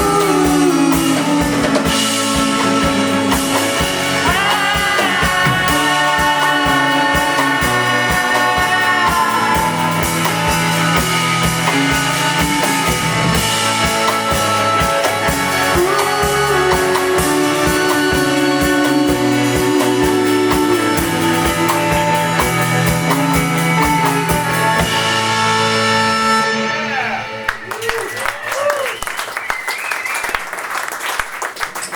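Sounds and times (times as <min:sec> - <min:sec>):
drum beat: 0:00.0 - 0:25.3
live rock band playing: 0:00.0 - 0:30.6.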